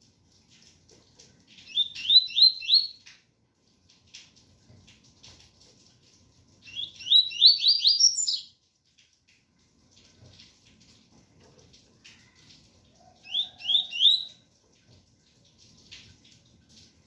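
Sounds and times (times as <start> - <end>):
bird singing whistled notes: 1.7 - 3.0, 6.7 - 8.5, 13.3 - 14.4.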